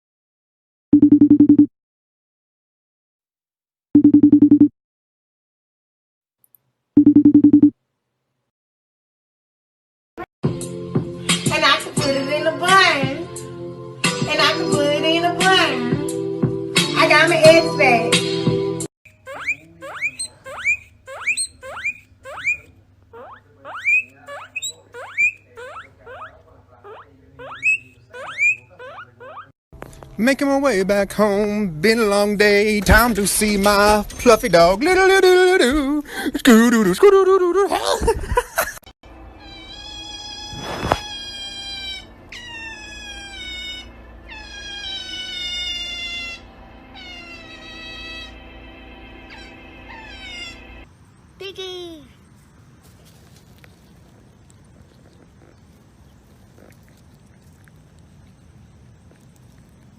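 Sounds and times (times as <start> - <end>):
small animal squealing: 19.1 - 29.6, 39.3 - 48.4, 49.3 - 50.6, 54.0 - 57.9
faint low hum: 39.1 - 59.9
cat meowing: 39.3 - 48.4, 49.3 - 50.6.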